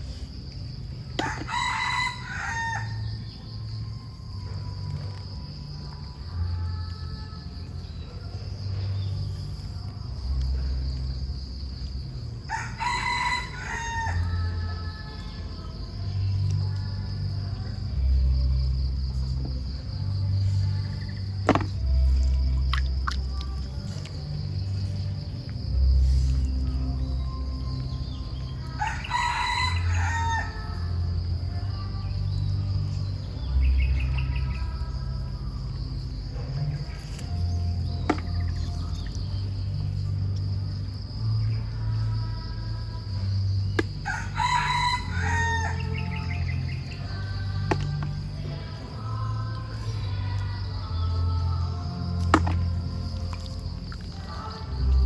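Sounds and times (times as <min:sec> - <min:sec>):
high insect-like hum: 0:00.0 - 0:55.0
low background music: 0:00.0 - 0:55.0
low steady drone: 0:00.0 - 0:55.0
rooster crowing: 0:01.2 - 0:03.2, 0:12.5 - 0:14.4, 0:28.8 - 0:30.8, 0:44.0 - 0:46.4.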